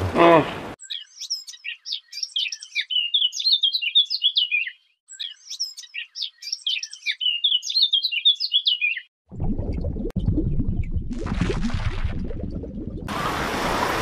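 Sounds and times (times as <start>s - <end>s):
songbird singing chirps and trills: 0.8s - 9.1s.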